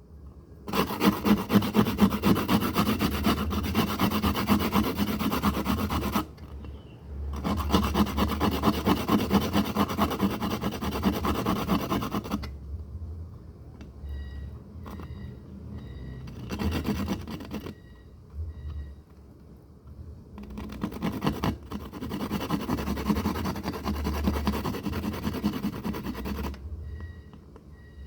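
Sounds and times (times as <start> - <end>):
fast scraping strokes: 0.7 - 6.3, 7.4 - 12.5, 16.3 - 17.8, 20.6 - 26.6.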